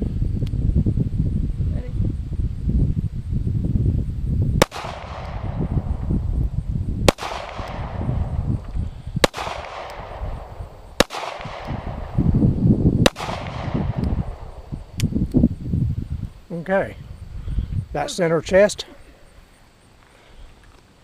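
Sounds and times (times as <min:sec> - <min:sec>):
wind rumbling on microphone: 0:00.0 - 0:19.8
handgun shots echoing: 0:04.6 - 0:05.6, 0:07.1 - 0:08.2, 0:09.2 - 0:12.2, 0:13.0 - 0:14.5.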